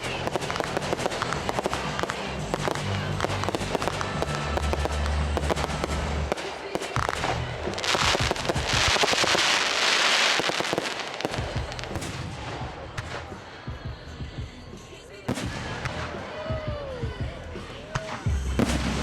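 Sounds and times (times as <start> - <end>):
crackling hiss: 0.0 - 12.4
fireworks bangs and cracks: 0.0 - 19.0.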